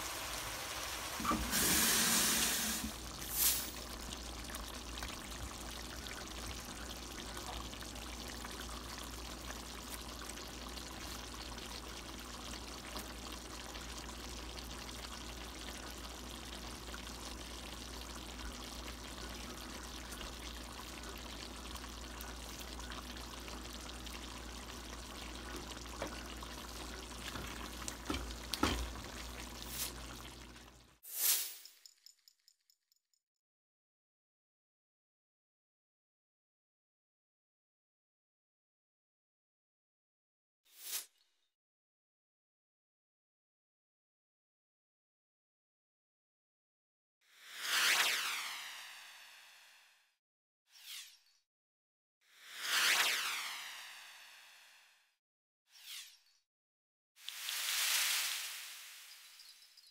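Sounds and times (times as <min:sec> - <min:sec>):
curry simmering and sizzling: 0:00.0 - 0:31.0.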